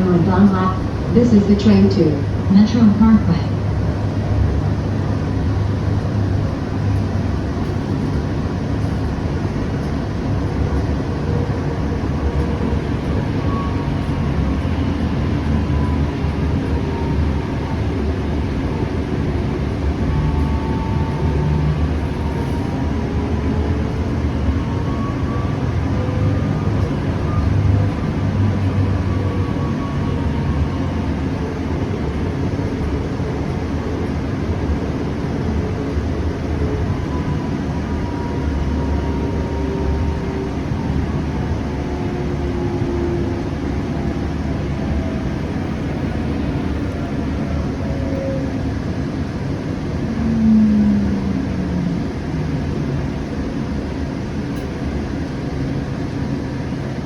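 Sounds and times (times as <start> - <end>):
wheels rumbling on track: 0.0 - 57.0
faint whine: 43.0 - 55.1.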